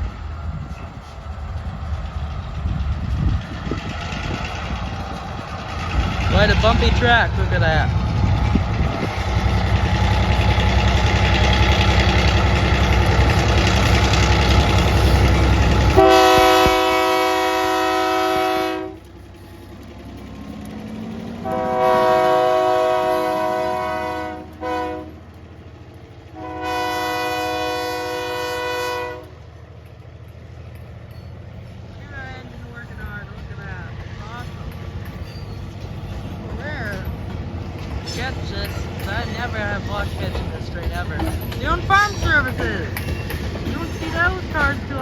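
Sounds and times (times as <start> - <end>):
diesel locomotive running: 0.0 - 45.0
locomotive air horn blasts: 15.9 - 19.0, 21.4 - 25.2, 26.4 - 29.4.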